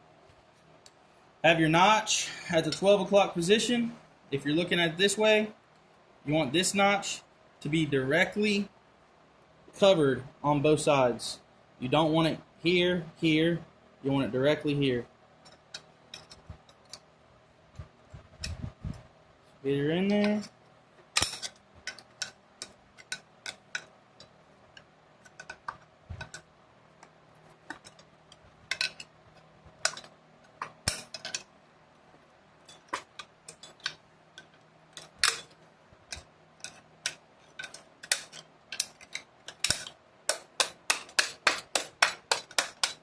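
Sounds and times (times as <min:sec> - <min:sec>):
metallic taps of hand tools: 0:32.7 - 0:43.0.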